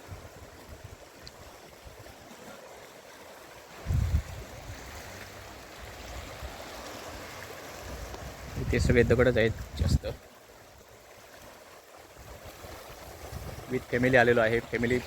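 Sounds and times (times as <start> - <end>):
sea surf washing onto rocky beach: 0.0 - 15.0
wind buffeting microphone: 3.7 - 5.0, 5.7 - 10.2, 12.2 - 15.0.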